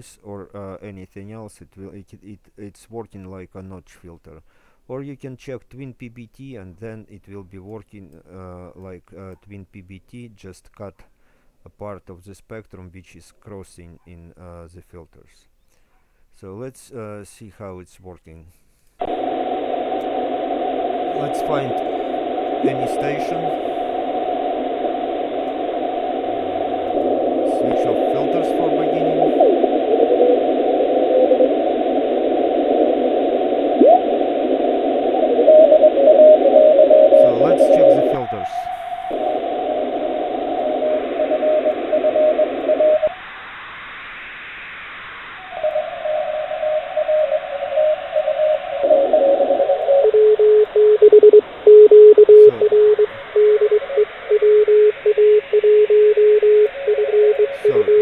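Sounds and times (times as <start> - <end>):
morse code tones: 19.0 - 43.2, 45.4 - 58.0
radio band hiss: 19.0 - 58.0.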